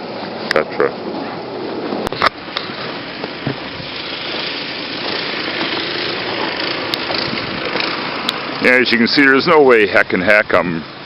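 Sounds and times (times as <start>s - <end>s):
snow blowing: 1.0s - 9.7s
snowblower engine running: 1.4s - 11.0s.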